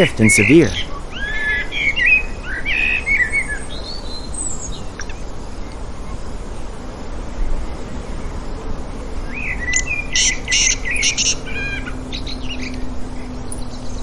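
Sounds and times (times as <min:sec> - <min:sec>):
small birds chirping: 0:00.0 - 0:06.2, 0:09.4 - 0:14.0
outdoor background noise: 0:00.0 - 0:14.0
high bird whistles: 0:05.0 - 0:05.2, 0:09.7 - 0:11.8.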